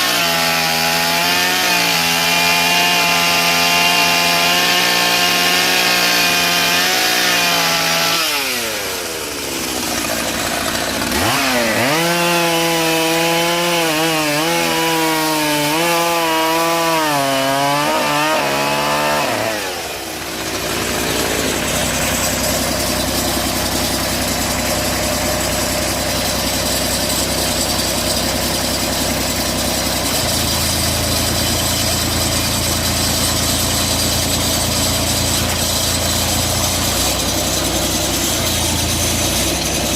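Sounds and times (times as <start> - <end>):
power saw cutting log: 0.0 - 39.9.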